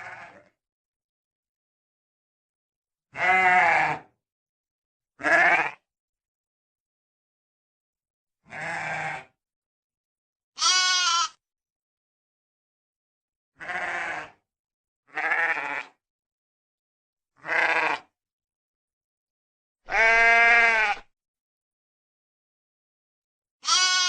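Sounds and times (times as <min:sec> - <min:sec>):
sheep bleating: 0:00.0 - 0:00.5, 0:03.1 - 0:04.1, 0:05.2 - 0:05.8, 0:08.5 - 0:09.3, 0:10.6 - 0:11.4, 0:13.6 - 0:14.4, 0:15.1 - 0:16.0, 0:17.4 - 0:18.1, 0:19.9 - 0:21.1, 0:23.6 - 0:24.0.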